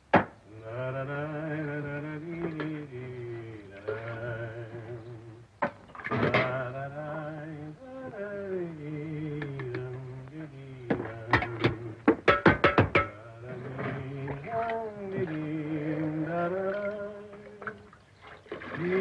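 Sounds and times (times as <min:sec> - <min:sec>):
man humming: 0:00.5 - 0:05.5, 0:06.3 - 0:12.1
clunks: 0:05.6 - 0:06.7, 0:10.9 - 0:15.3.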